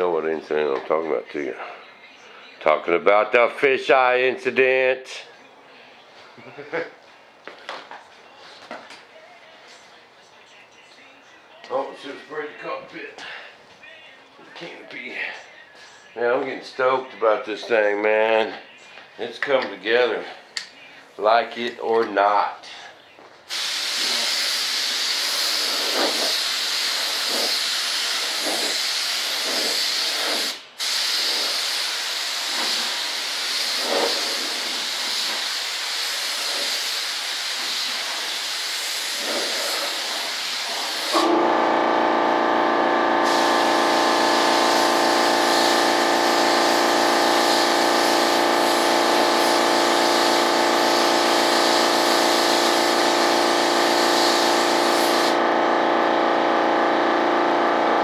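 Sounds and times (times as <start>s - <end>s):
spray can hissing: 23.5s - 41.3s, 43.2s - 55.4s
droning machine: 41.1s - 58.0s.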